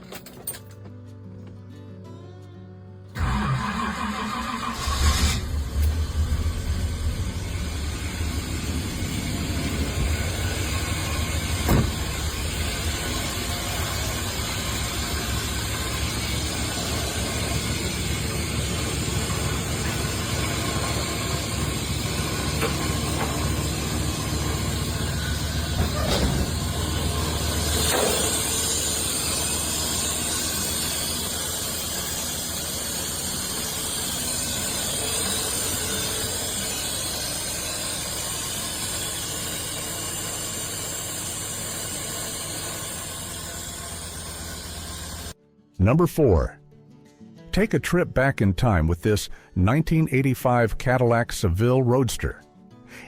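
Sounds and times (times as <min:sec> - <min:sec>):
car engine idling: 0:03.2 - 0:45.4.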